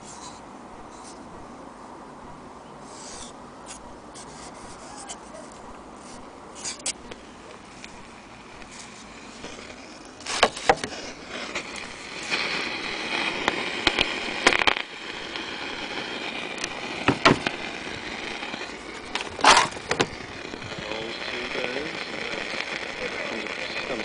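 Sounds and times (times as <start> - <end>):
radio crackling and hissing: 2.3 - 24.0
radio whistling interference: 6.6 - 24.0.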